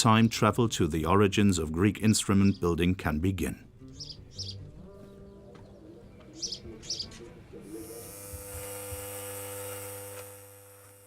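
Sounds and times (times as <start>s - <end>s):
small birds chirping: 2.0s - 8.0s
electric buzz with hiss: 7.7s - 11.0s.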